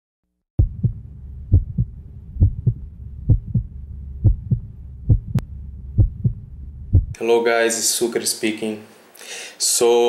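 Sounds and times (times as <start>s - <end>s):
heartbeat double thump: 0.6s - 7.2s
low steady hum: 0.6s - 8.4s.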